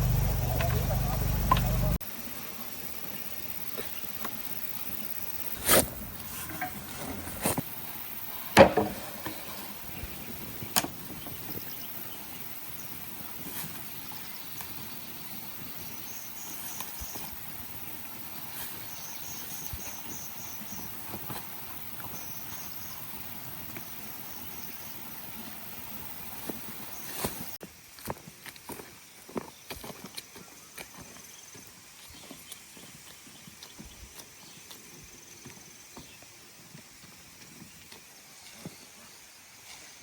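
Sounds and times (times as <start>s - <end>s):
steady outdoor hiss: 0.0s - 40.0s
sharp knocks: 8.6s - 9.4s.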